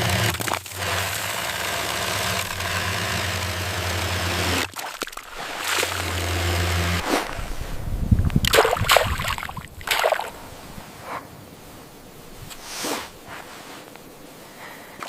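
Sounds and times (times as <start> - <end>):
low motor hum: 0.0 - 4.6, 5.3 - 8.5.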